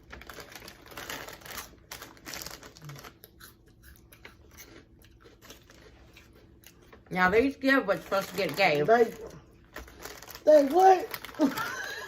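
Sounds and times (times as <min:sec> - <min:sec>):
plastic snack bag crinkling: 0:00.0 - 0:03.4, 0:07.9 - 0:12.0.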